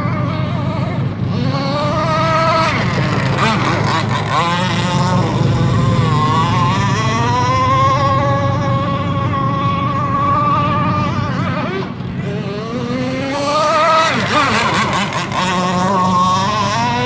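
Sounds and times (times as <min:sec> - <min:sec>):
boat motor running: 0:00.0 - 0:17.0.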